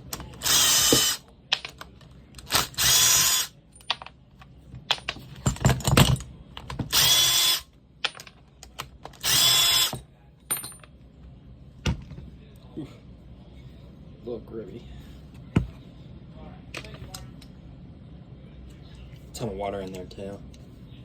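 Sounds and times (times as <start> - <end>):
cordless drill motor whine: 0.4 - 1.2, 2.5 - 3.5, 6.9 - 7.6, 9.2 - 9.9
clunks of tool and parts: 4.8 - 7.4.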